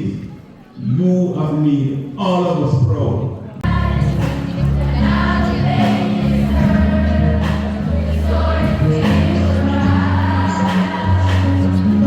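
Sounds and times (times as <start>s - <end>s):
choir singing: 3.6s - 12.0s
strong bass line: 3.6s - 12.0s.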